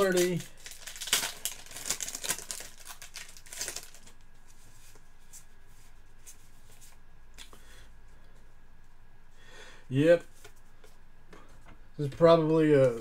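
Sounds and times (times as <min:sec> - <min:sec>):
trading cards rustling: 0:00.0 - 0:07.0.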